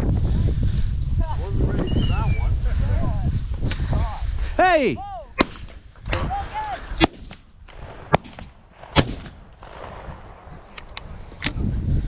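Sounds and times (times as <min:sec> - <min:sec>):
shotgun shots: 0:05.4 - 0:05.9, 0:07.0 - 0:10.8.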